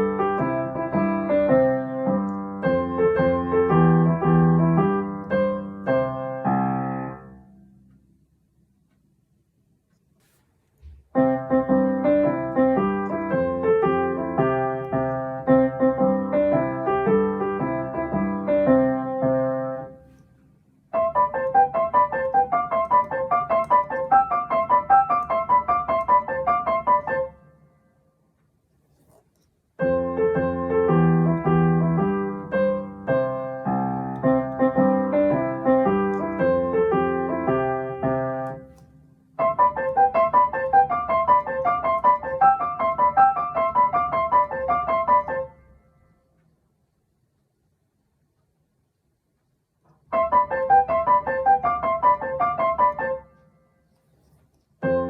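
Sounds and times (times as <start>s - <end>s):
piano phrases: 0.0s - 8.0s, 11.1s - 20.2s, 20.8s - 27.7s, 29.8s - 45.8s, 50.0s - 53.4s, 54.8s - 55.0s.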